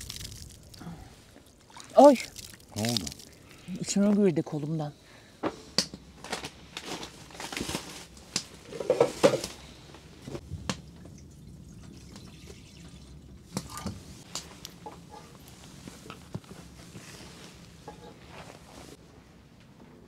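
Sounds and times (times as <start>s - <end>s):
water splashing: 0.0s - 3.6s
water dripping: 0.0s - 3.8s, 10.5s - 14.0s.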